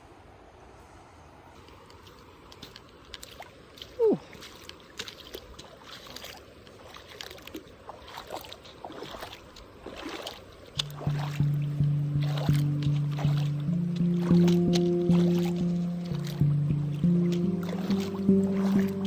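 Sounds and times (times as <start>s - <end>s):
water splashing and sloshing: 1.6s - 19.0s
person saying ooh: 4.0s - 4.3s
river rushing: 8.1s - 19.0s.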